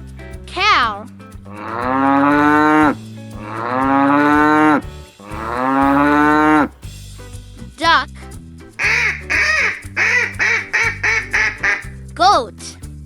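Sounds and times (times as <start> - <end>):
cow mooing: 1.5 - 6.7.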